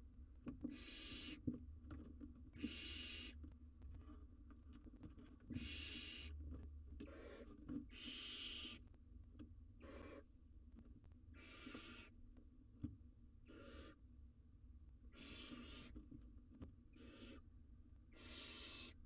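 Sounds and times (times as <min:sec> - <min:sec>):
owlet hissing calls: 0:00.7 - 0:01.4, 0:02.6 - 0:03.4, 0:05.6 - 0:06.3, 0:07.1 - 0:08.8, 0:11.4 - 0:12.1, 0:13.5 - 0:14.0, 0:15.1 - 0:15.9, 0:17.0 - 0:17.4, 0:18.2 - 0:19.0.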